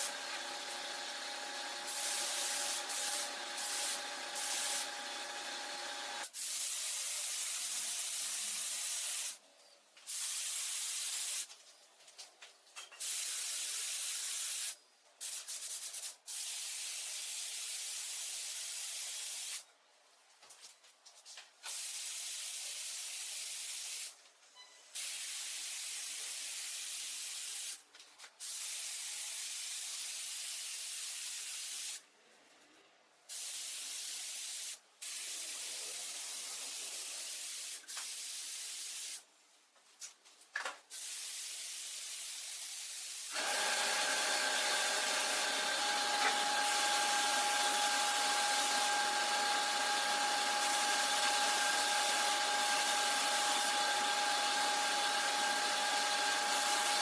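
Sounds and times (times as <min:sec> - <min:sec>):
compressed air spray hissing: 0:01.7 - 0:05.0, 0:06.2 - 0:09.4, 0:10.1 - 0:11.5, 0:13.0 - 0:19.6, 0:33.3 - 0:39.2, 0:40.9 - 0:45.9, 0:46.6 - 0:48.8, 0:50.6 - 0:53.7, 0:56.5 - 0:57.0.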